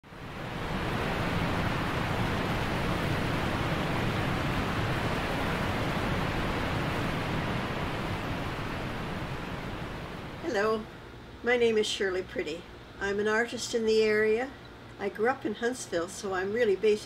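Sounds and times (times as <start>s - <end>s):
steady rushing noise: 0.0s - 11.2s.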